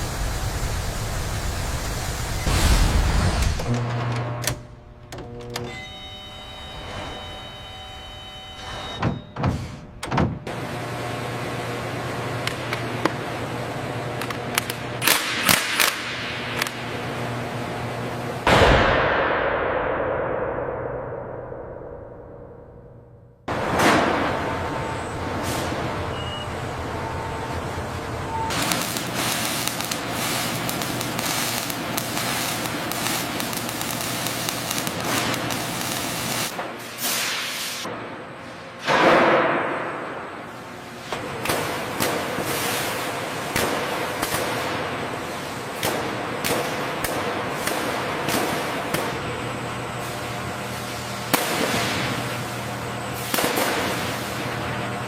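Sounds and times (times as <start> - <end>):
hiss of escaping air: 0.0 - 3.6
factory machinery hum: 0.0 - 55.0.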